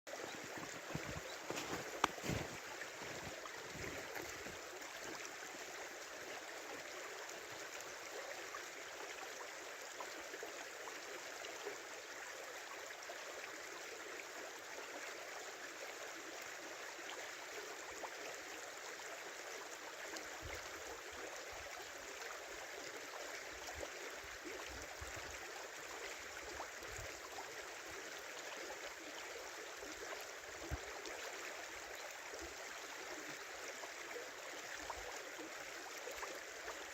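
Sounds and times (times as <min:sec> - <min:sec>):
river babbling: 0:00.1 - 0:11.0.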